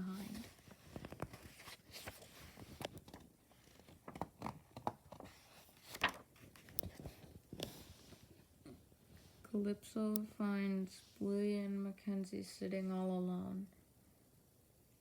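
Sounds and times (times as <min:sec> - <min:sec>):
soft taps and rustles of book: 0:00.2 - 0:08.8.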